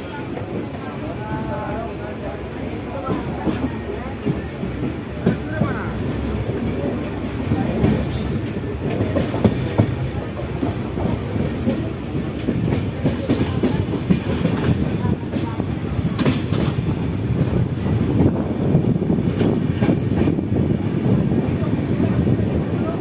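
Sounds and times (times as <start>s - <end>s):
train rumbling on rails: 0.0s - 23.0s
wheels clacking over rail joints: 2.7s - 18.4s.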